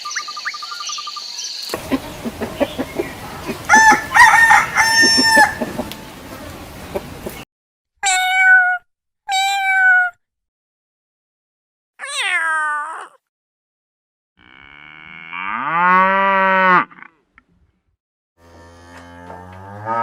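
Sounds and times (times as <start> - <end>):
chickens clucking: 1.7 - 7.4
rooster crowing: 1.8 - 7.4
cat meowing: 8.0 - 10.2, 12.0 - 13.2.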